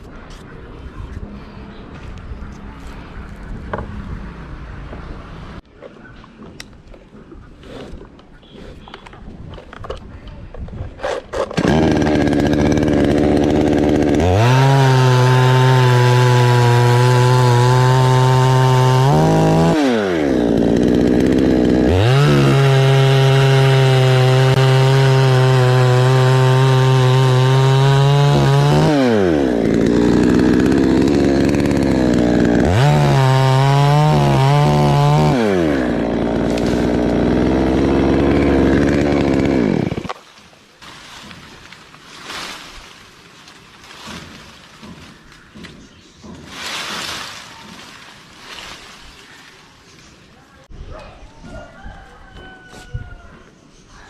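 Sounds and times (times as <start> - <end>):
chainsaw cutting wood: 11.0 - 40.3, 40.9 - 49.4.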